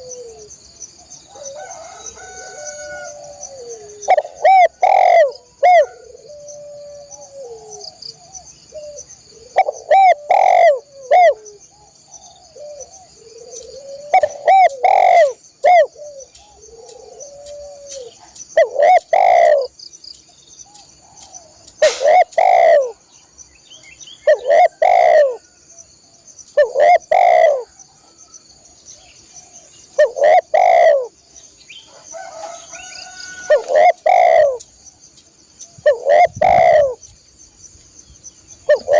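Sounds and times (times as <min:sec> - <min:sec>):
dove cooing: 0:00.0 - 0:00.6, 0:01.3 - 0:19.7, 0:20.7 - 0:23.0, 0:24.2 - 0:25.6, 0:26.6 - 0:28.7, 0:29.4 - 0:31.2, 0:31.9 - 0:34.6, 0:35.8 - 0:37.0, 0:38.7 - 0:38.9
high insect drone: 0:00.0 - 0:38.9.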